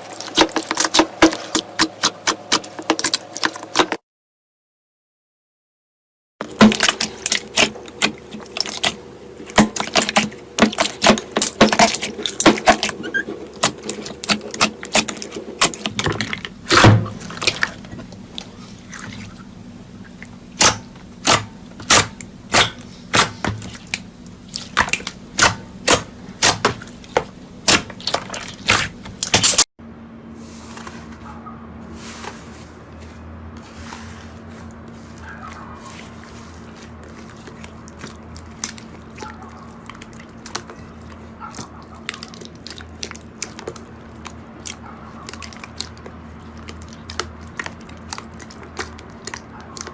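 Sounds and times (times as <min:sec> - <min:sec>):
slime squishing: 0:00.0 - 0:04.0, 0:06.4 - 0:29.7, 0:32.0 - 0:49.9.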